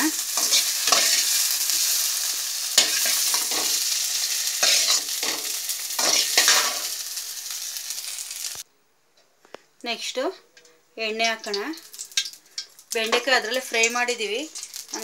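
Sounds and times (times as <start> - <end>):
okra sizzling in hot oil: 0.0 - 8.7, 9.9 - 15.0
metal spatula scraping pan: 0.4 - 1.9, 2.8 - 3.8, 4.6 - 6.9.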